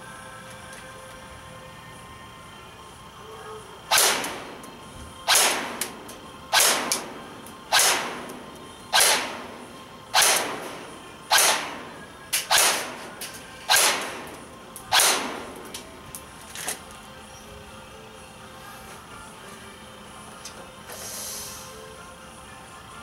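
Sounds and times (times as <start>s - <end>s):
airsoft rifle shots: 3.9s - 4.6s, 5.3s - 13.1s, 13.7s - 15.6s.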